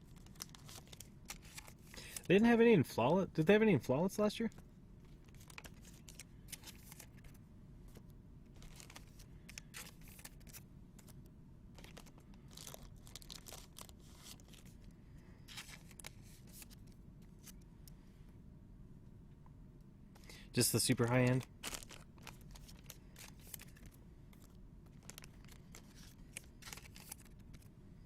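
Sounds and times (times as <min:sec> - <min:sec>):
foil wrappers crinkling and tearing: 0:00.0 - 0:02.5, 0:05.2 - 0:07.4, 0:08.6 - 0:11.2, 0:11.8 - 0:14.8, 0:15.5 - 0:16.8, 0:20.9 - 0:27.7
low room hum: 0:00.0 - 0:28.0.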